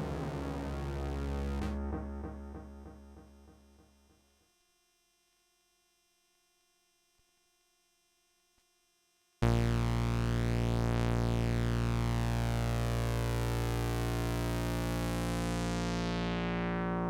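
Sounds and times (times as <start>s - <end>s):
held low synthesizer note: 0.0s - 3.8s
synthesizer low note pattern: 0.0s - 3.9s.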